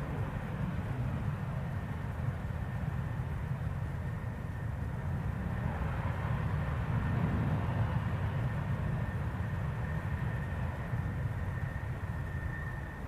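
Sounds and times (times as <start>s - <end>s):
jet engine running: 0.0s - 13.0s.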